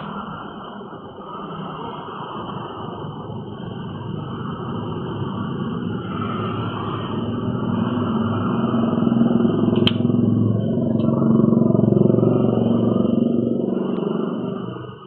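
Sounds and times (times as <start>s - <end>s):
engine running: 0.0s - 15.0s
sharp click: 9.8s - 10.0s.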